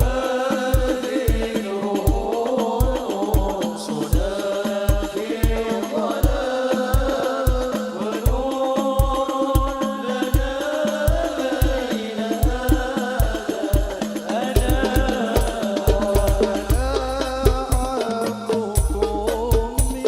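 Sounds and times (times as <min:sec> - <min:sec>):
sustained sung melody: 0:00.0 - 0:20.0
bass drum thumps: 0:14.7 - 0:18.0, 0:18.8 - 0:20.0.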